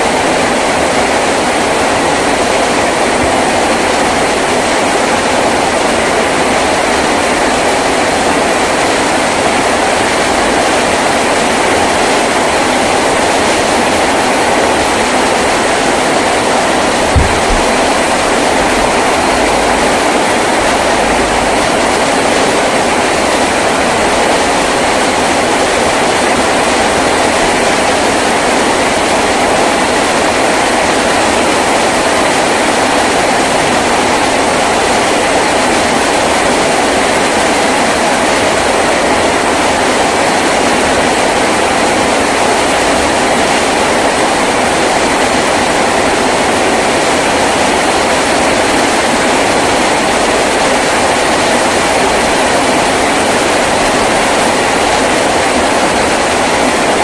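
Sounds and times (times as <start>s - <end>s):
rain on a tin roof: 0.0s - 57.0s
dull thump: 17.0s - 19.1s.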